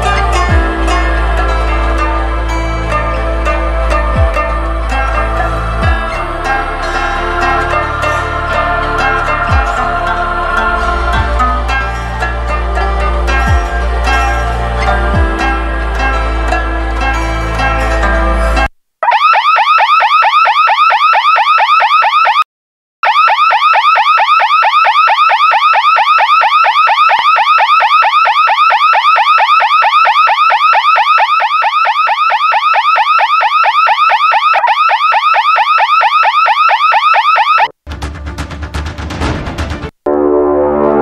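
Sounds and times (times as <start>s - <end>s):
electronic alarm siren whooping: 0.0s - 17.8s, 19.0s - 22.4s, 23.0s - 37.7s.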